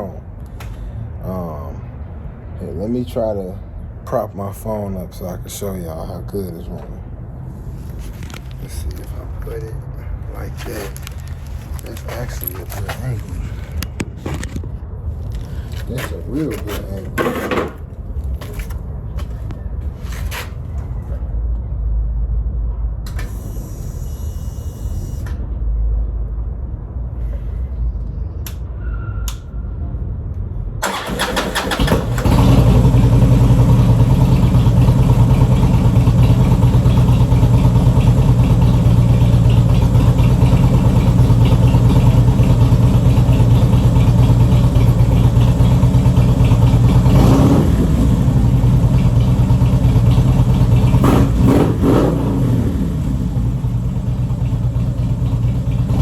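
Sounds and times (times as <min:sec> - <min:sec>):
motorcycle engine running: 0:30.8 - 0:56.0.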